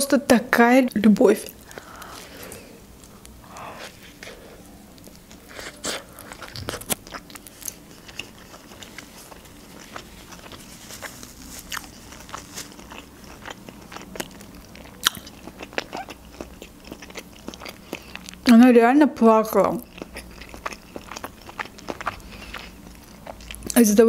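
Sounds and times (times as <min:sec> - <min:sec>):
chewing with mouth clicks: 0:01.4 - 0:18.5, 0:19.6 - 0:23.8
biting into soft bread: 0:03.5 - 0:18.3.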